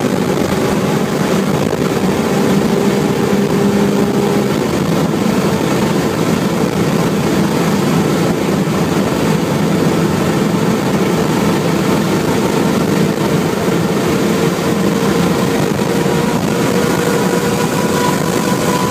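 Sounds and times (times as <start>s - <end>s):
car engine running under load: 0.0s - 18.9s
wind and road noise: 0.0s - 18.9s.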